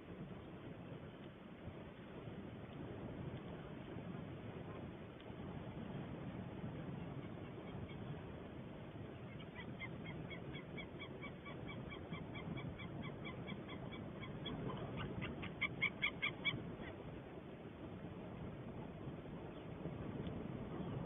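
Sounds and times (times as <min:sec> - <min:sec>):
eagle calling yelping notes: 0:09.3 - 0:16.9.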